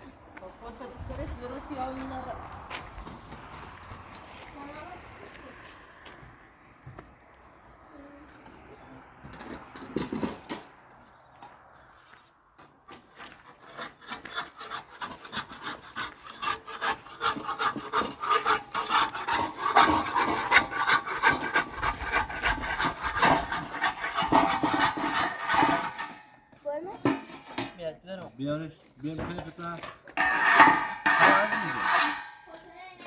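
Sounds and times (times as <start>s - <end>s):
rapid scraping strokes: 13.4s - 26.4s, 30.2s - 32.5s.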